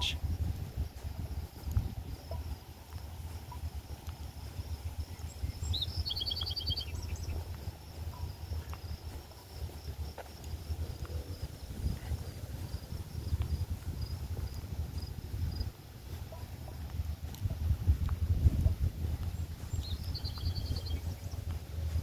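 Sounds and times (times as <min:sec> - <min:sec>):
crickets trilling: 0:00.0 - 0:22.0
bird trilled call: 0:05.7 - 0:07.3.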